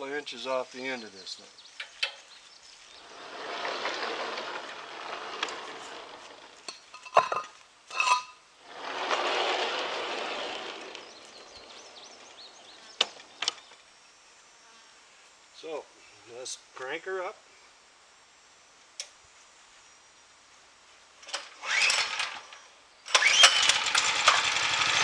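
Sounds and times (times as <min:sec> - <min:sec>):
metal scraping and rushing: 0:03.0 - 0:13.5.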